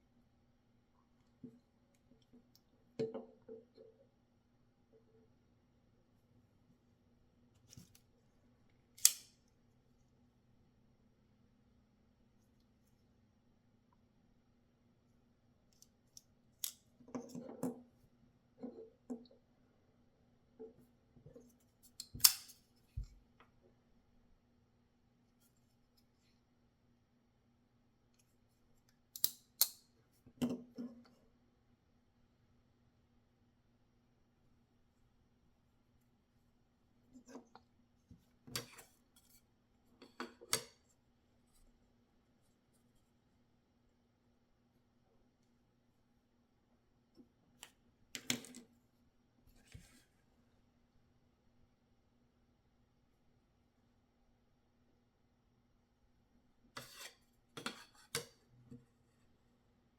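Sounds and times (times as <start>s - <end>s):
folding knife metal clicks: 9.0s - 9.4s, 22.0s - 22.6s, 29.2s - 29.8s.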